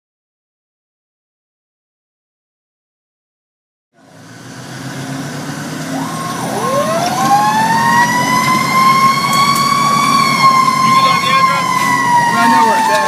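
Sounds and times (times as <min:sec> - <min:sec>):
truck engine rumble: 0:04.0 - 0:13.0
siren wailing: 0:05.6 - 0:13.0
siren yelping: 0:05.8 - 0:13.0.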